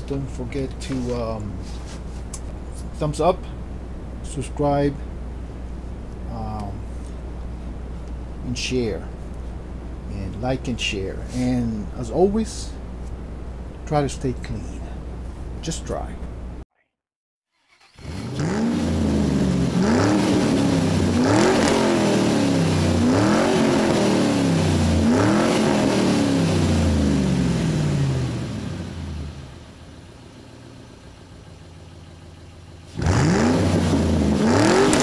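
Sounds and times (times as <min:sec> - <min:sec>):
car engine revving: 0:17.7 - 0:29.8, 0:32.7 - 0:35.0
car engine idling: 0:26.4 - 0:35.0.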